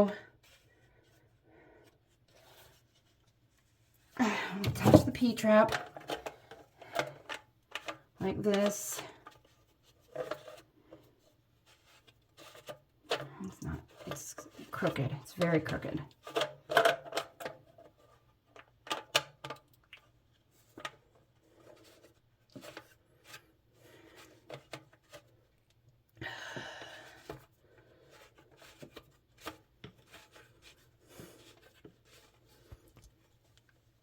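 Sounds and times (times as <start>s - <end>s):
pipe parts clicking and knocking: 4.6s - 9.0s, 13.1s - 17.9s, 18.6s - 20.0s.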